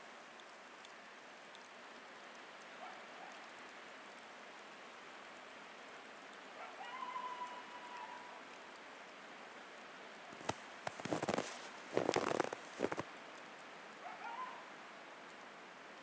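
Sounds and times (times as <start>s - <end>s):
coyote howling: 6.6s - 8.4s, 14.0s - 14.7s
snowstorm wind hiss: 10.3s - 13.1s.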